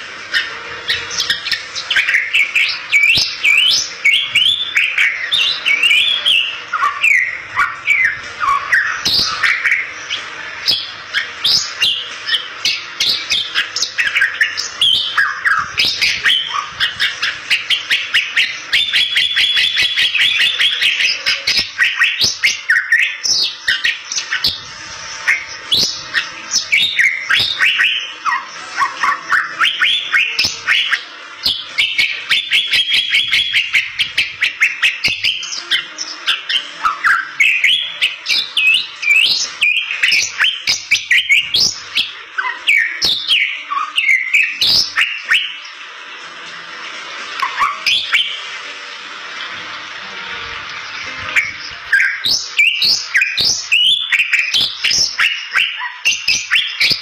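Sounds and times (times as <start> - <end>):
myna singing whistles and clicks: 25.3 - 45.6.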